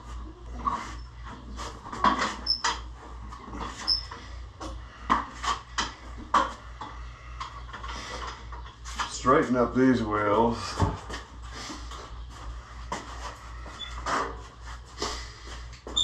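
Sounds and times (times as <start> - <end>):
steady low hum: 0.0 - 16.0
wheels squeaking: 0.4 - 4.4, 13.8 - 14.4.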